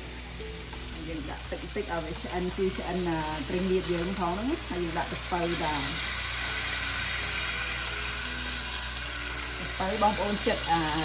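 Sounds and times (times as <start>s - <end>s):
meat and fish sizzling in pan: 0.0s - 11.0s.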